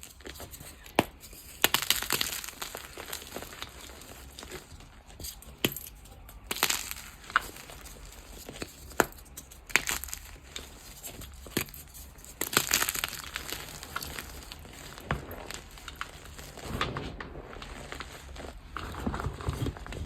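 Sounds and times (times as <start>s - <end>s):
chalk being crushed: 0.0s - 20.0s
soft powdery rustle: 10.2s - 20.0s.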